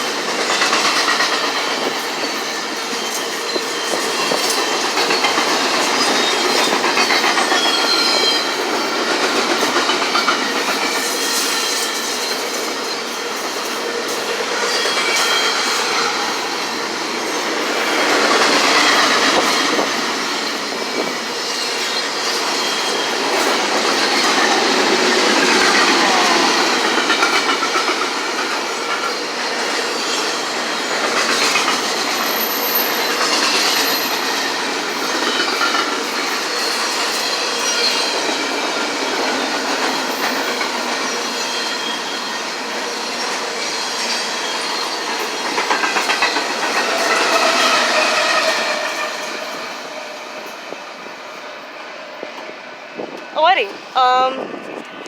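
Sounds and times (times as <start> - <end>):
wheels clacking over rail joints: 0.0 - 50.5
train wheels rumbling on rails: 0.0 - 55.0
high wheel squeal: 2.2 - 8.8, 14.6 - 19.8, 20.4 - 24.4, 31.5 - 35.7, 40.2 - 50.5.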